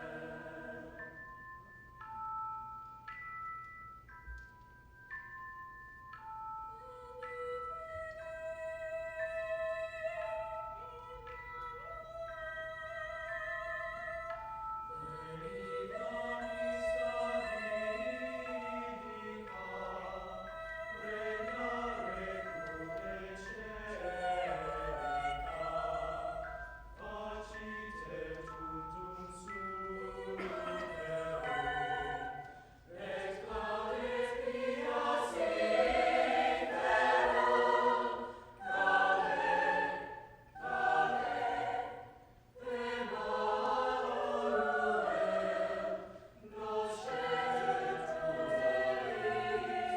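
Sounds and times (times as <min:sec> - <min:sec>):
choir singing: 0:00.0 - 0:01.2, 0:06.7 - 0:49.9
steady instrumental notes: 0:00.0 - 0:49.9.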